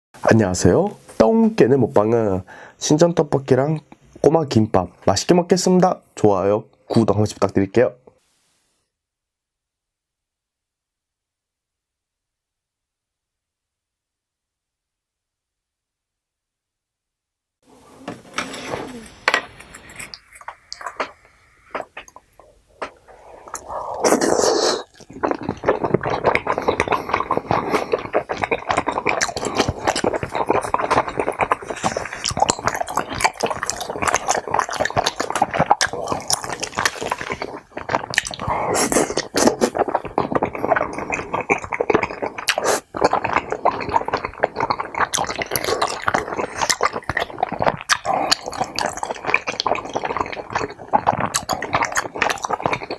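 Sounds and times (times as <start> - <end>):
wet chewing and smacking: 18.9 - 52.9.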